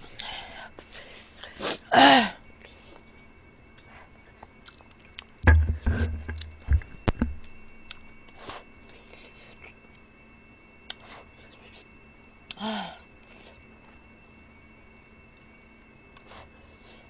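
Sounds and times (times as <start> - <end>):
chewing and biting: 3.7 - 5.3
low thuds: 5.4 - 7.5.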